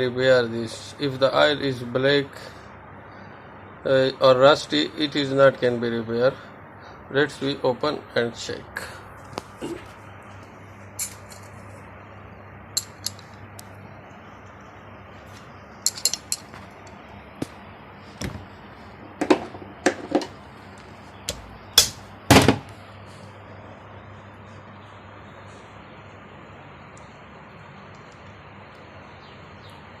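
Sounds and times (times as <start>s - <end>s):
metallic clicks of hand tools: 12.8s - 13.3s, 15.8s - 16.5s.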